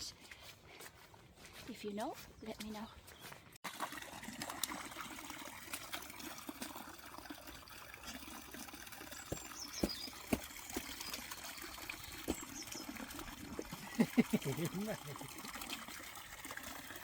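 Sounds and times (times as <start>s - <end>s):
water trickling: 3.6s - 17.0s
small drips: 3.7s - 17.0s.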